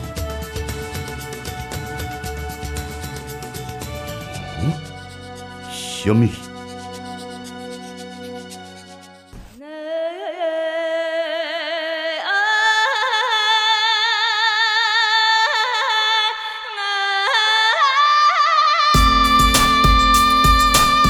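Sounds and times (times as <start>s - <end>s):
person singing with vibrato: 9.6s - 21.0s.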